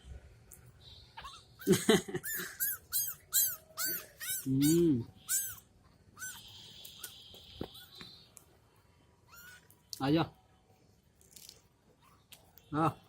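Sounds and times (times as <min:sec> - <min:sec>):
kittens mewing: 0:01.2 - 0:05.6, 0:06.2 - 0:08.0, 0:09.3 - 0:09.7.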